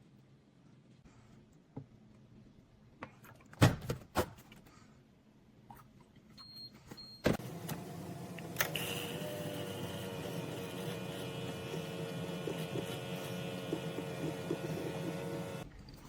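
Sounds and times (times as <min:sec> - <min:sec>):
coffee maker motor whirring: 0:07.4 - 0:15.7.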